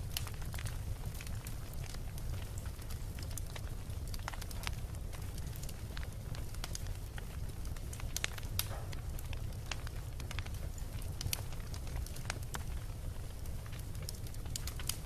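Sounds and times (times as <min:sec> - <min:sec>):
bonfire crackling and popping: 0:00.0 - 0:15.0
steady low rumble: 0:00.0 - 0:15.0.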